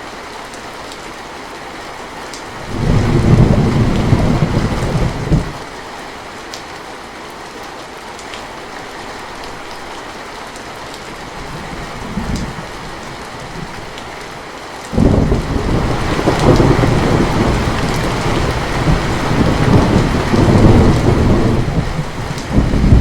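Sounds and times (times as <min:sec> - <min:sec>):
steady rain falling: 0:00.0 - 0:23.0
distant thunder rumbling: 0:02.6 - 0:05.6, 0:14.9 - 0:23.0.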